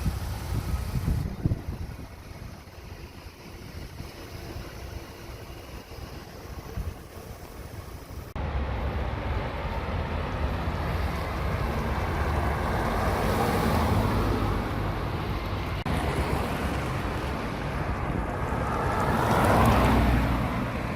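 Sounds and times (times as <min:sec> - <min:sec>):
wind buffeting microphone: 0:00.0 - 0:04.9
road and wind noise: 0:00.0 - 0:20.9.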